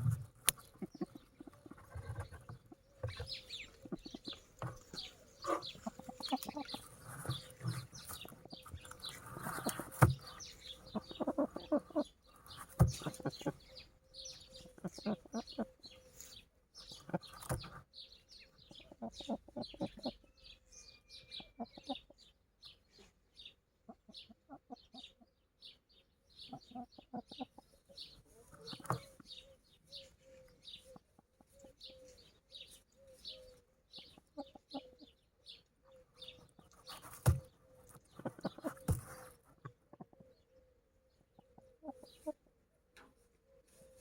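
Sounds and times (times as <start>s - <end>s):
chickens clucking: 0.0s - 44.0s.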